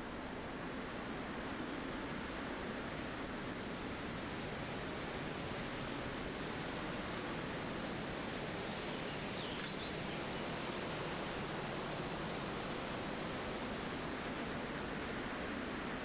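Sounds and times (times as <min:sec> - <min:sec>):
wind rushing through trees: 0:00.0 - 0:16.0.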